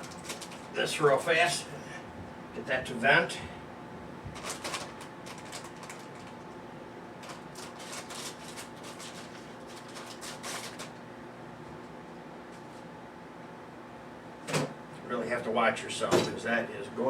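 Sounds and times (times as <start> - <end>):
plastic bag crinkling: 0.0 - 0.8, 4.3 - 6.4, 7.2 - 11.0.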